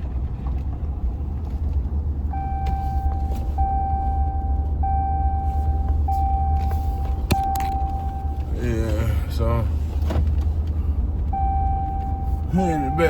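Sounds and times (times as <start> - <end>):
truck engine and road rumble: 0.0 - 13.0
dashboard warning beeps: 2.3 - 9.2, 11.3 - 13.0.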